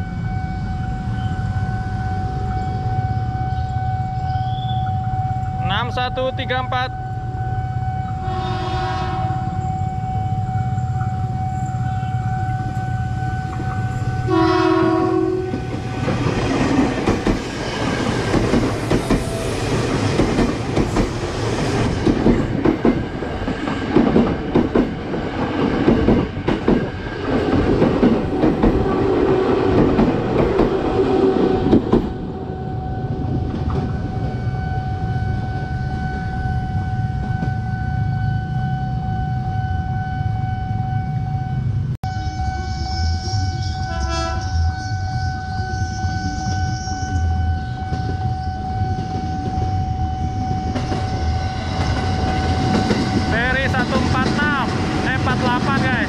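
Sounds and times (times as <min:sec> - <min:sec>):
crossing warning tone: 0:00.0 - 0:56.0
train horn: 0:06.8 - 0:10.9, 0:11.7 - 0:16.0, 0:28.7 - 0:29.9, 0:30.6 - 0:53.7
train wheel clatter: 0:15.5 - 0:32.2, 0:50.7 - 0:56.0.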